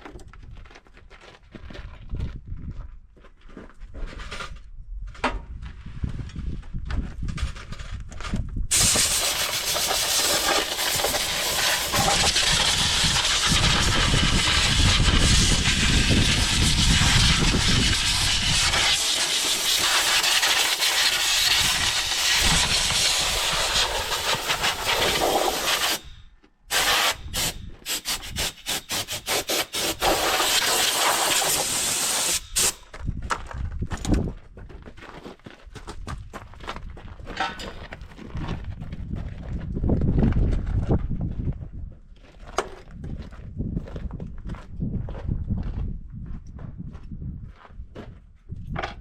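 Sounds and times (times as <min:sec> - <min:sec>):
compressed air blow gun hissing: 0:08.7 - 0:26.1, 0:26.7 - 0:32.8.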